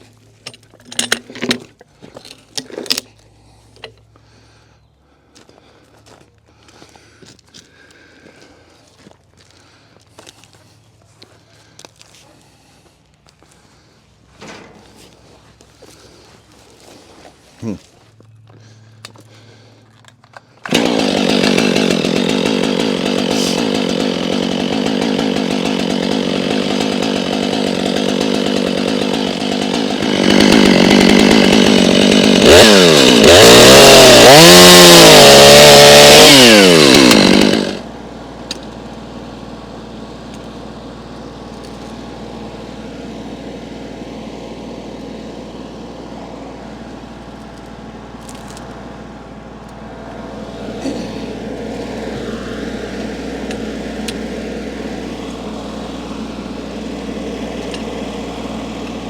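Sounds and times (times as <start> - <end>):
chainsaw revving: 20.6 - 59.0.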